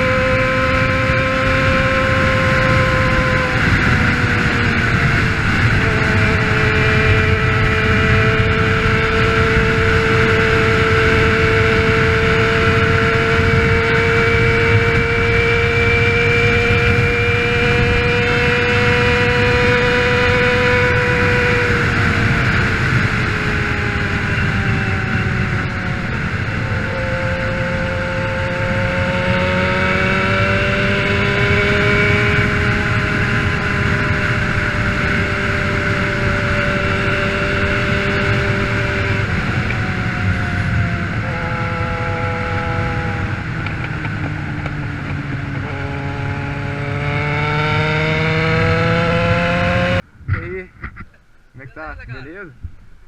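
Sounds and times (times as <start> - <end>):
motorcycle engine running: 0.0 - 51.7.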